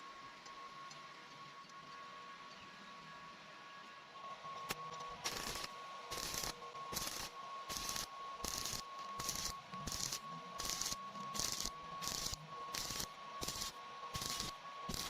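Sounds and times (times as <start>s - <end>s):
faint steady whine: 0.0s - 15.0s
welding arc hissing: 5.2s - 15.0s.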